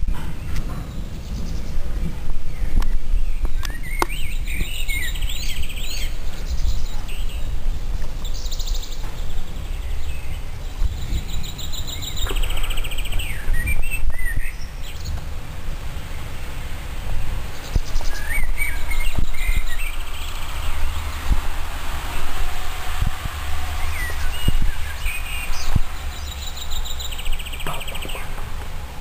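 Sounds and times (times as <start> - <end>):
songbirds chirping and trilling: 0.0 - 29.0
loud low rumble: 18.5 - 29.0.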